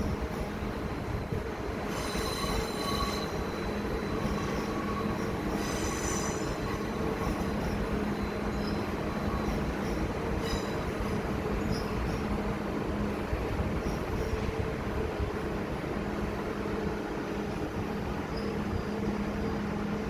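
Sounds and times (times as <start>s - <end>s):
train rumbling along track: 0.0s - 20.0s
wheels squealing against rails: 1.8s - 12.6s, 17.6s - 20.0s.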